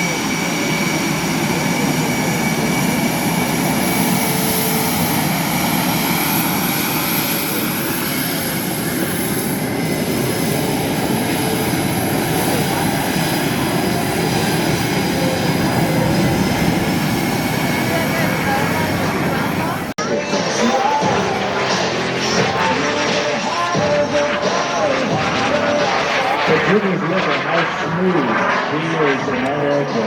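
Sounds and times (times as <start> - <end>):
jet engine rushing: 0.0 - 30.0.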